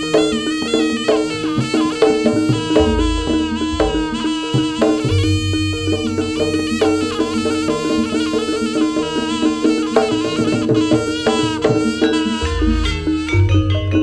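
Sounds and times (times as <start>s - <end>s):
drums: 0.0s - 8.1s, 8.7s - 14.0s
gamelan ensemble playing: 0.0s - 14.0s.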